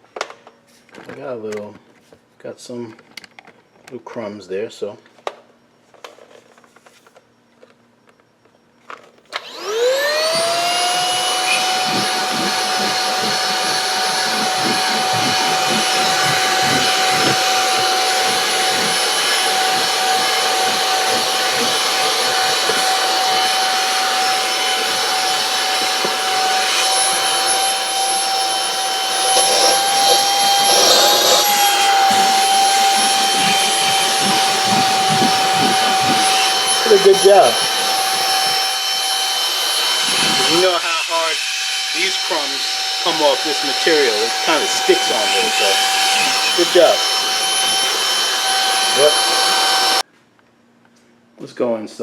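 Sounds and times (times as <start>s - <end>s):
stick vacuum whining: 9.3s - 50.0s.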